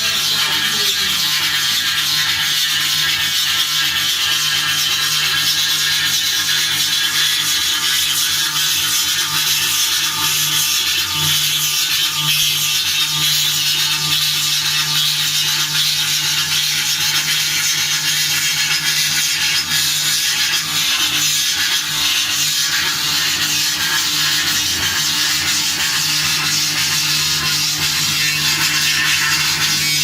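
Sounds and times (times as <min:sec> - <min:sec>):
low motor hum: 0:00.0 - 0:01.7
engraving cutter hissing: 0:00.0 - 0:30.0.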